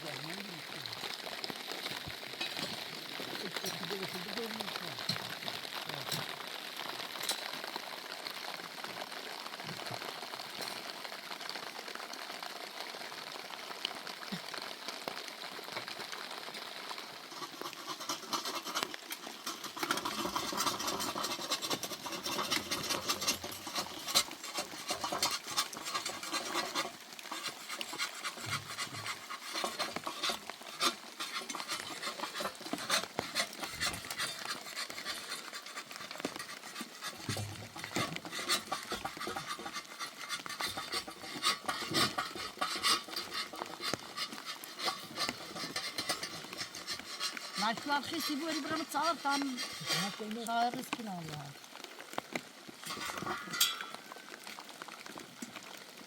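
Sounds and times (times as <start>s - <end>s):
rain patter: 0.0s - 56.0s
metal spoon scraping a pot: 17.4s - 51.0s, 52.9s - 54.3s.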